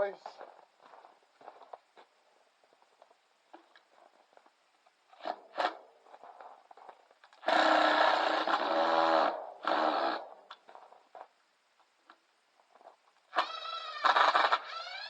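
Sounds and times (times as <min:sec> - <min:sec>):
cordless drill running: 0:07.4 - 0:10.2, 0:13.4 - 0:15.0.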